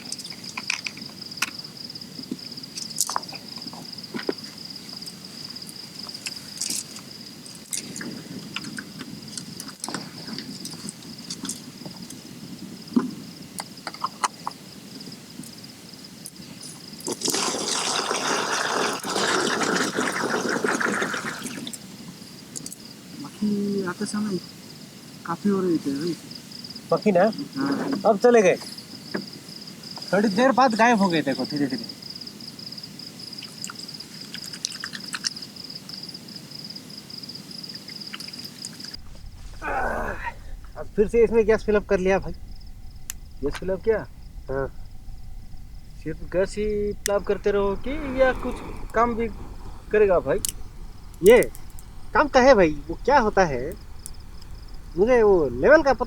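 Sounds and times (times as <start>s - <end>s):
crickets chirping: 0.0s - 56.0s
loud hissing rush: 38.9s - 56.0s.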